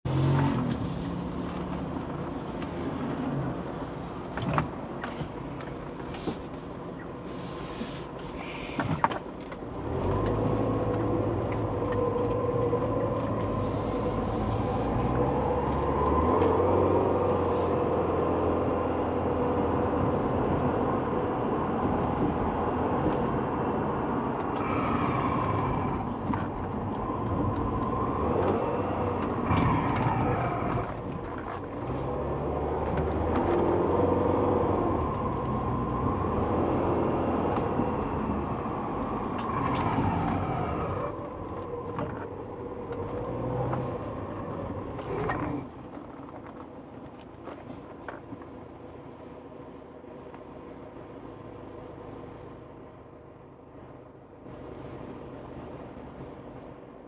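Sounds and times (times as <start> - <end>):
car brakes grinding: 24.4 - 35.8.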